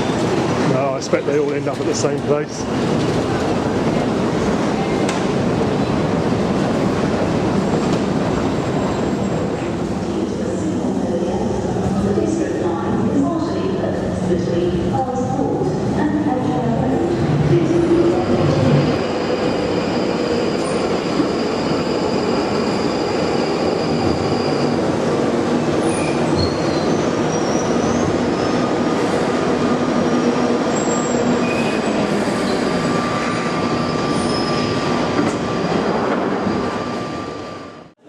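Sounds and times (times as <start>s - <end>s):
train wheels rumbling on rails: 0.0s - 10.8s.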